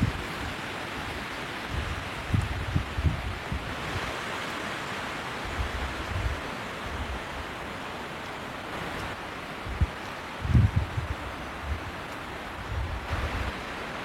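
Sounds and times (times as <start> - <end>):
wind buffeting microphone: 0.0 - 4.8, 5.4 - 7.8, 8.5 - 14.0
snowstorm wind blowing: 0.0 - 14.0.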